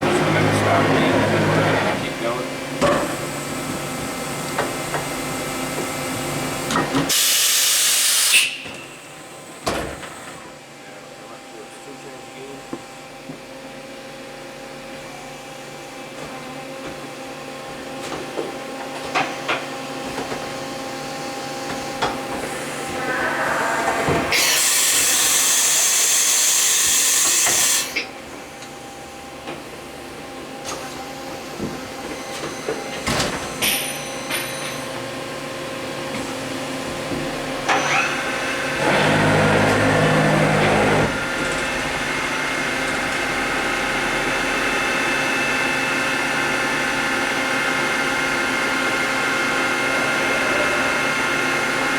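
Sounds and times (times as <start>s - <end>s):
compressed air hiss: 7.1s - 8.6s, 22.9s - 27.9s
machine humming: 22.4s - 26.5s, 38.2s - 45.5s.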